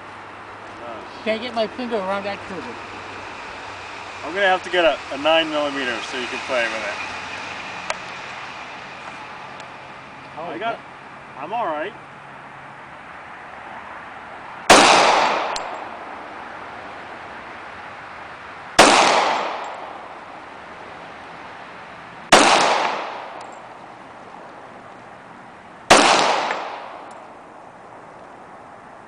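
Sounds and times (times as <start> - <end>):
pistol shots: 14.7 - 15.8, 18.8 - 19.9, 22.3 - 23.4, 25.9 - 27.1.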